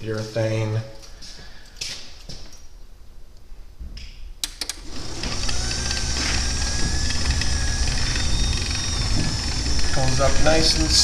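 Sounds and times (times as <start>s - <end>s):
garage door opener running: 4.5s - 11.0s.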